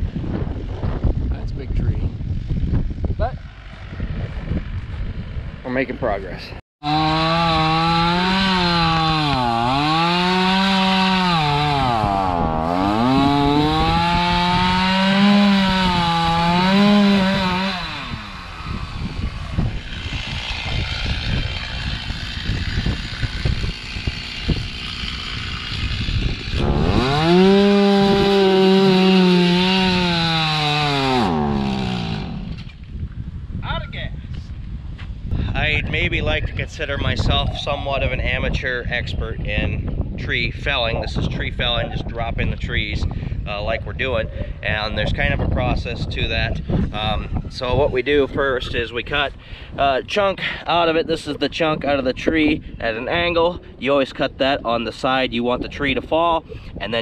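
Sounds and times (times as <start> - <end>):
chainsaw cutting wood: 6.8 - 32.8.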